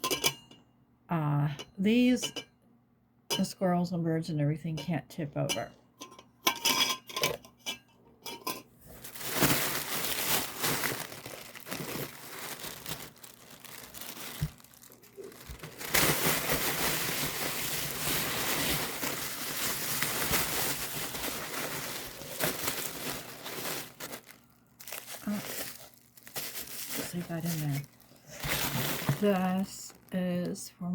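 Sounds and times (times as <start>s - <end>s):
packaging wrap crinkling and tearing: 8.9s - 30.6s.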